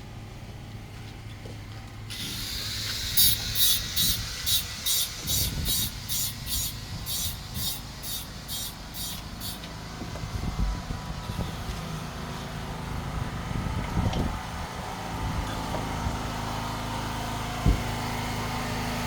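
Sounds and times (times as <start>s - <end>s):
hand tool scraping wood: 2.2s - 9.7s.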